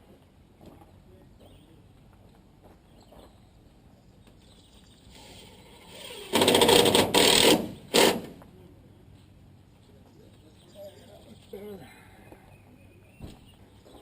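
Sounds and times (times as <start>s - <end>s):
power driver driving a screw: 5.2s - 8.3s.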